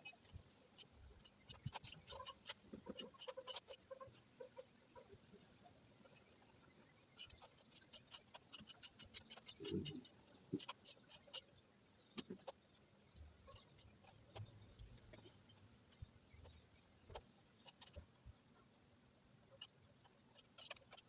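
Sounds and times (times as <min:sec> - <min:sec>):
hand tools clicking and tapping: 0:07.8 - 0:11.4.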